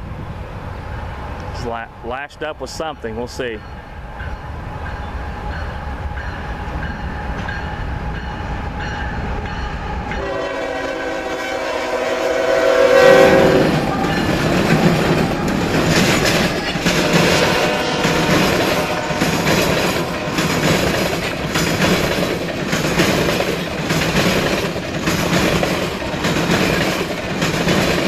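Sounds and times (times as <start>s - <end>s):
diesel locomotives rumbling: 0.0s - 28.0s
train air horn blast: 10.2s - 14.1s, 16.9s - 20.9s
wheel-on-rail clatter: 13.7s - 17.4s, 18.0s - 28.0s.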